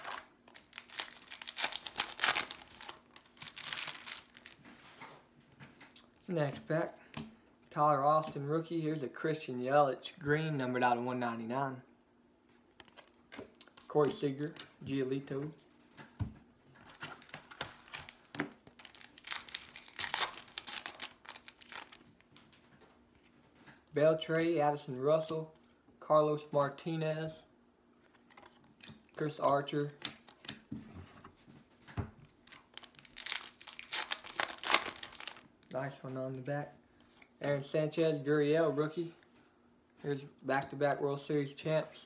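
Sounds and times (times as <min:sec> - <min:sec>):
foil wrapper tearing and crinkling: 0:00.0 - 0:04.6, 0:17.2 - 0:22.1, 0:32.4 - 0:35.5.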